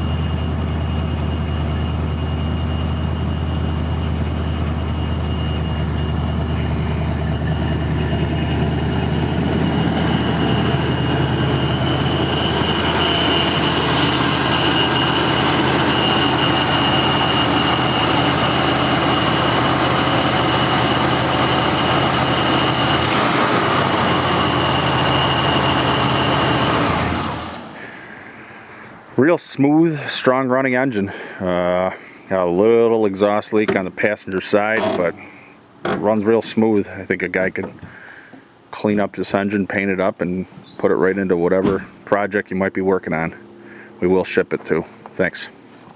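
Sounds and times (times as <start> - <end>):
car engine running smoothly: 0.0 - 28.9.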